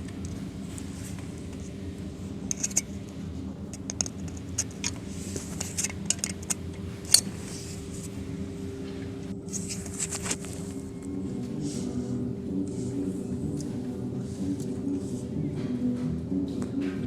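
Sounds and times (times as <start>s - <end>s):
steady low hum: 0.0s - 17.0s
metallic clicks of hand tools: 2.5s - 2.9s, 3.8s - 8.1s.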